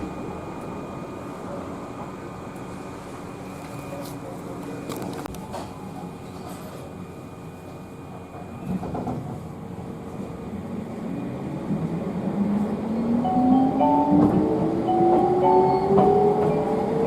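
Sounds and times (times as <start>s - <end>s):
train running rumble: 8.0s - 17.0s.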